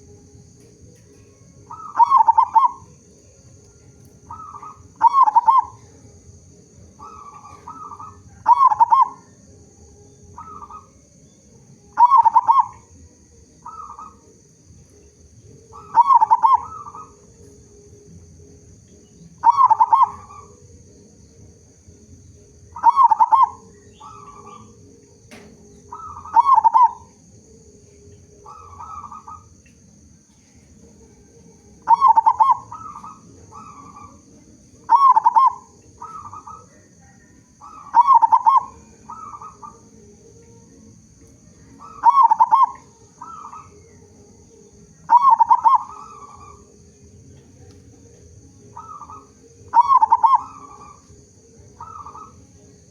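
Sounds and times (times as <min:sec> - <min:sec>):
dove cooing: 0:00.0 - 0:18.2, 0:18.9 - 0:52.9.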